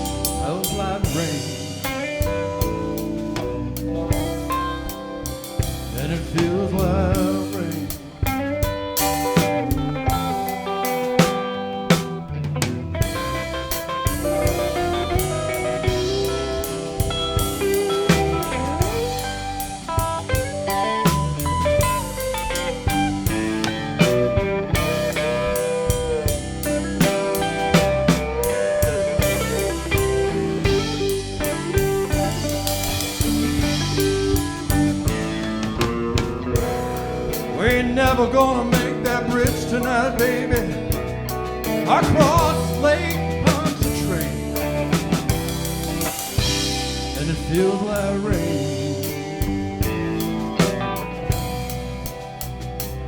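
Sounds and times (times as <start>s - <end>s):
bass guitar: 0.0s - 53.0s
drum kit: 0.0s - 53.0s
electric guitar with bent notes: 0.0s - 53.0s.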